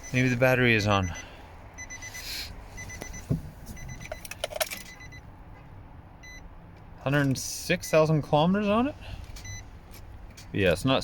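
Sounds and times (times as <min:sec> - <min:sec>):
dashboard warning chime beeping: 0:00.0 - 0:05.3, 0:06.2 - 0:06.5, 0:07.4 - 0:09.8
keys jingling in ignition: 0:03.8 - 0:05.2.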